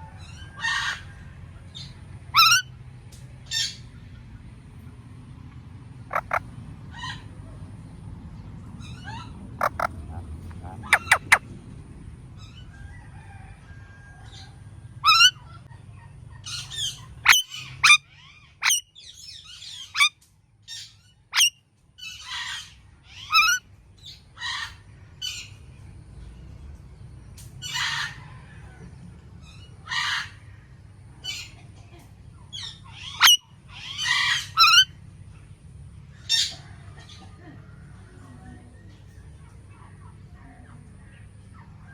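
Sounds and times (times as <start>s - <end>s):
faint low rumble: 0.0s - 17.8s
parakeet calling: 2.3s - 2.7s, 6.1s - 6.4s, 8.8s - 11.4s, 15.0s - 15.4s, 16.5s - 18.0s, 18.6s - 18.8s, 23.2s - 23.6s, 32.6s - 34.9s
parakeet screeches: 2.4s - 2.7s, 6.1s - 6.4s, 9.1s - 11.4s, 15.0s - 15.3s, 33.0s - 34.9s.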